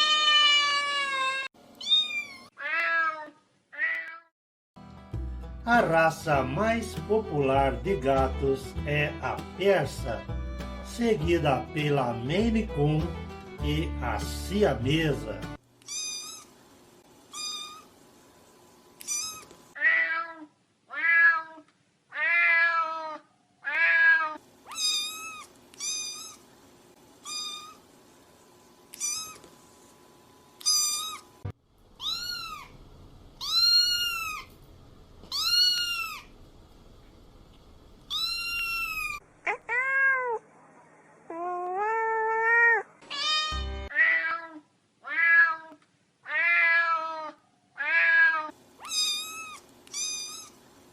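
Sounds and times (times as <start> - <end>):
kittens and cats meowing: 0.0 - 4.3, 15.8 - 16.5, 17.3 - 17.9, 19.0 - 26.4, 27.2 - 27.8, 28.9 - 29.5, 30.6 - 31.3, 32.0 - 32.8, 33.4 - 34.6, 35.2 - 36.3, 38.1 - 40.5, 41.2 - 50.6.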